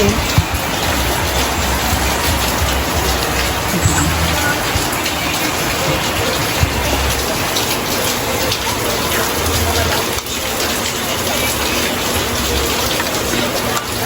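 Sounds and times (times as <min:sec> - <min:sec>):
low thuds: 0:00.0 - 0:07.4
steady rain falling: 0:00.0 - 0:14.0.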